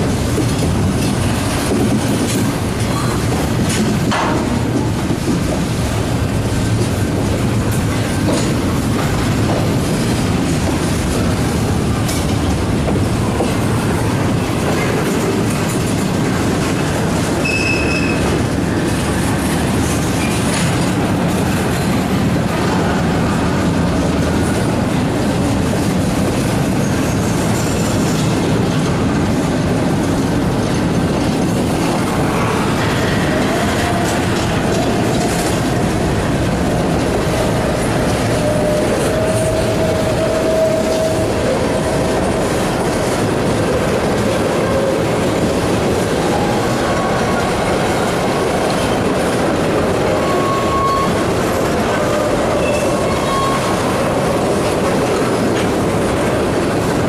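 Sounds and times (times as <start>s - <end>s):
freight train wheels rumbling: 0.0s - 57.0s
wheel squeal: 17.4s - 18.4s, 50.0s - 54.4s.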